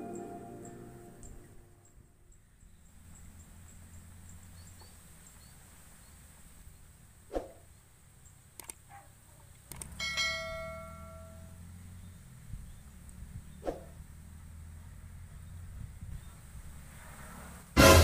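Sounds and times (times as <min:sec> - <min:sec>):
faint low outdoor rumble: 0:00.0 - 0:18.0
quick swish: 0:07.3 - 0:07.6, 0:13.6 - 0:14.0
sharp clicks: 0:08.5 - 0:08.9, 0:09.5 - 0:10.0
bell ding ringing: 0:10.0 - 0:11.5.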